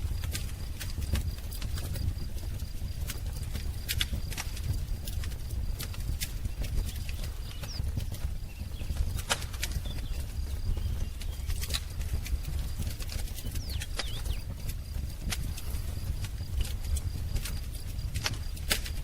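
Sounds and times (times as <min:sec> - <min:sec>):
fire low rumble: 0:00.0 - 0:19.0
wood fire crackling and popping: 0:00.0 - 0:19.0
faint bird chirps: 0:13.4 - 0:14.5.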